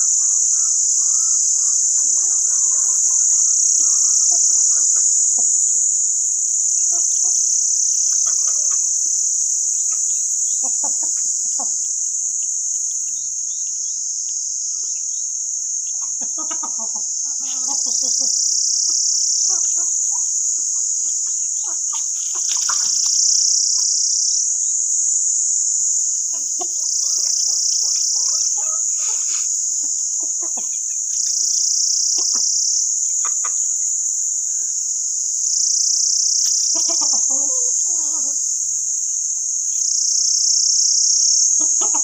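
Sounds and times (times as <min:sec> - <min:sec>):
chickens clucking softly: 0:00.0 - 0:05.8, 0:06.8 - 0:12.0, 0:15.8 - 0:24.1, 0:25.8 - 0:34.8, 0:35.9 - 0:39.5, 0:41.4 - 0:42.0
high-pitched insect chorus: 0:00.0 - 0:42.0.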